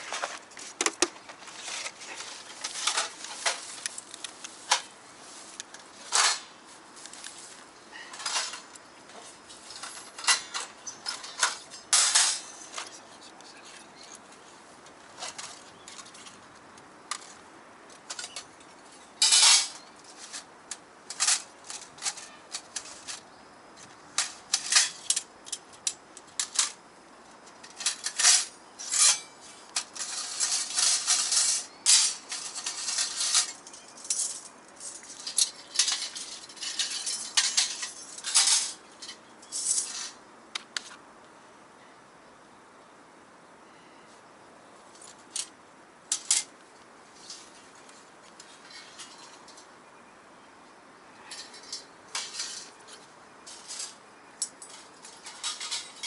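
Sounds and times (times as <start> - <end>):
metal scraping and rattling: 0.0 - 6.6, 7.4 - 14.2, 15.2 - 16.4, 19.2 - 23.2, 24.2 - 26.8, 27.5 - 40.2, 47.1 - 49.7, 51.3 - 56.0
thin metal pieces clinking: 29.8 - 40.2.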